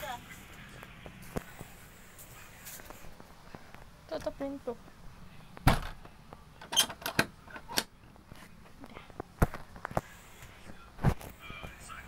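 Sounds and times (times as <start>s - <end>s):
door shutting with knocks and clicks: 5.6s - 7.9s.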